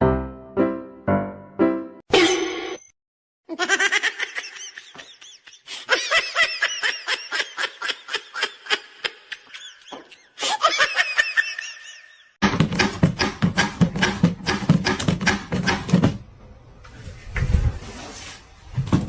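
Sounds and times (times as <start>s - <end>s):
person laughing hard: 3.5s - 12.3s.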